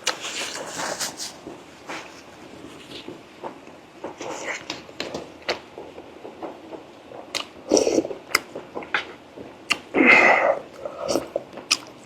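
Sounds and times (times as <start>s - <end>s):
person chewing: 7.3s - 8.5s, 9.7s - 12.0s
mouth clicks: 9.7s - 12.0s.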